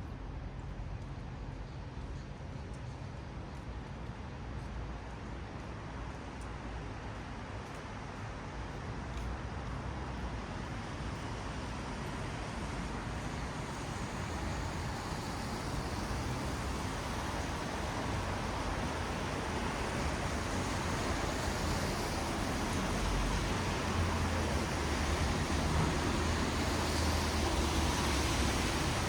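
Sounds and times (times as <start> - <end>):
rumble of passing vehicles: 0.0 - 29.0
tyres hissing on wet road: 10.7 - 29.0.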